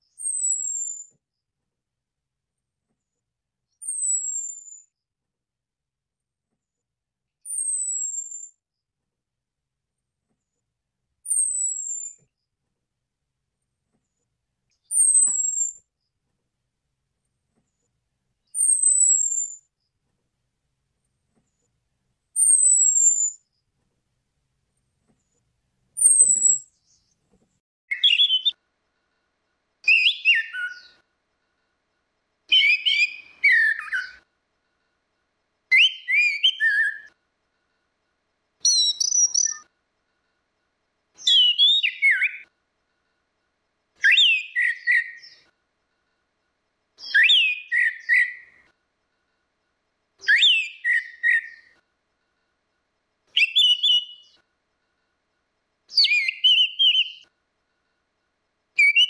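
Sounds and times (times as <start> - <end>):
thrush singing whistled phrases: 0.1 - 1.1, 11.3 - 12.2, 27.9 - 28.6, 29.9 - 31.0, 32.5 - 34.2, 35.7 - 37.1, 38.6 - 39.7, 41.2 - 42.5, 44.0 - 45.4, 47.0 - 48.7, 50.2 - 51.8, 53.4 - 54.4, 55.9 - 57.3, 58.8 - 59.0.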